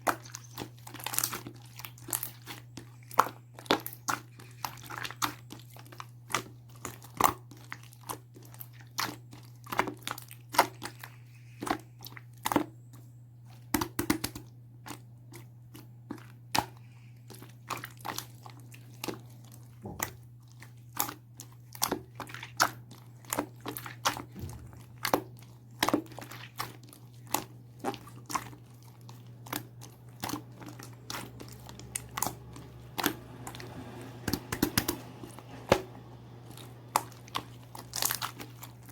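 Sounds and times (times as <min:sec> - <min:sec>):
steady low hum: 0:24.2 - 0:26.5.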